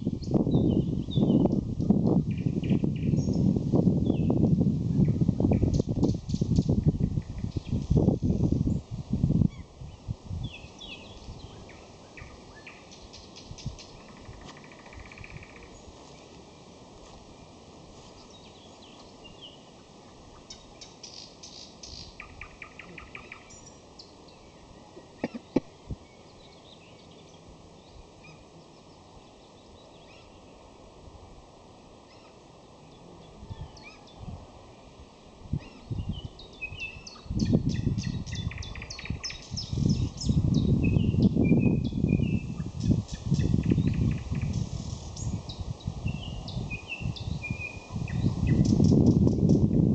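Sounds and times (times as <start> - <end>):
background hiss: 0.0 - 49.7
nightingale singing: 20.4 - 30.5, 35.5 - 49.8.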